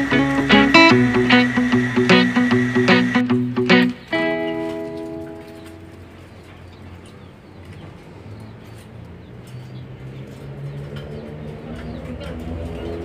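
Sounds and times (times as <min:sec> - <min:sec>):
low hum: 0:00.0 - 0:04.0
plucked chord: 0:00.0 - 0:06.2.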